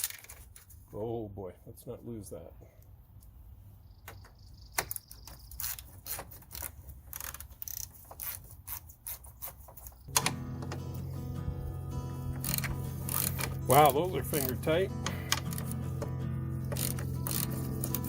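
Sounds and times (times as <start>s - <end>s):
ratchet wrench clicking: 5.5s - 9.6s, 12.4s - 13.5s, 16.7s - 18.0s
background music: 10.1s - 18.0s.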